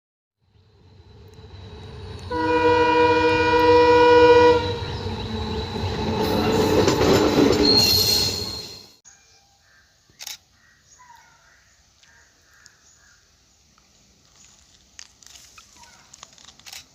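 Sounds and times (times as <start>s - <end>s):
locomotive horn blast: 2.3s - 5.2s
thin high squeal: 7.6s - 9.0s.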